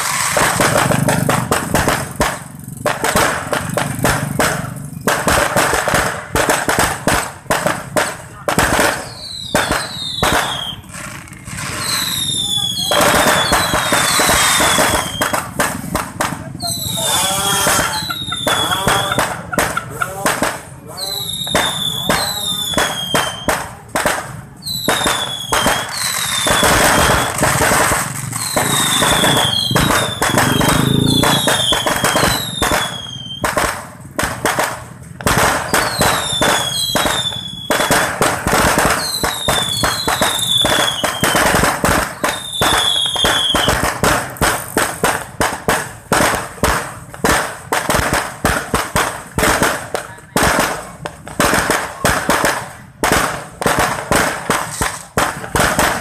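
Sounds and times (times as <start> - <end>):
falling firework whistles: 0.0 - 2.1, 8.7 - 23.7, 24.6 - 33.8, 35.2 - 45.3
firework pops and bangs: 0.0 - 56.0
firework shells bursting: 0.0 - 56.0.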